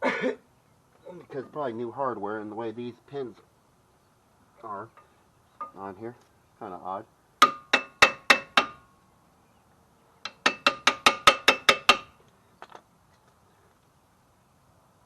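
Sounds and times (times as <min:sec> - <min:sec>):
hammer tapping on metal: 0:07.4 - 0:08.8, 0:10.2 - 0:12.1.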